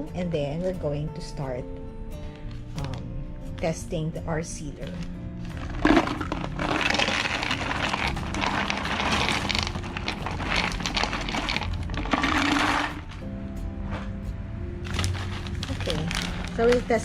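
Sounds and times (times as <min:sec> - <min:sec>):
quiet background music: 0:00.0 - 0:17.0
plastic bag rustling: 0:04.9 - 0:14.2, 0:14.8 - 0:17.0.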